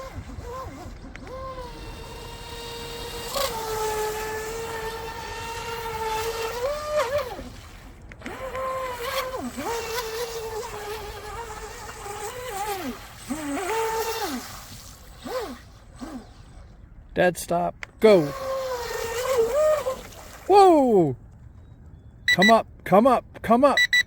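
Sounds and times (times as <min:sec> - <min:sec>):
electric motor whining: 0:00.0 - 0:16.8, 0:18.1 - 0:20.1.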